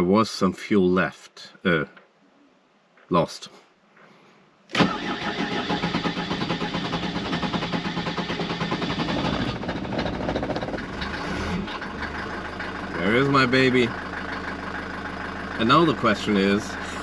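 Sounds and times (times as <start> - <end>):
diesel engine starting and running: 4.7 - 17.0.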